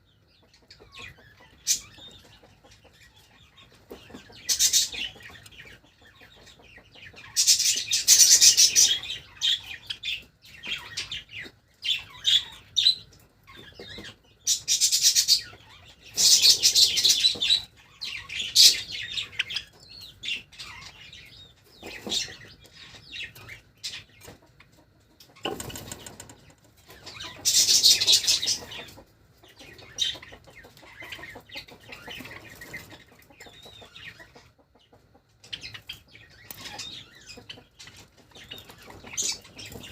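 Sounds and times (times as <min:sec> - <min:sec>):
bird calls: 0:00.0 - 0:39.9
birds fluttering wings: 0:25.4 - 0:26.5.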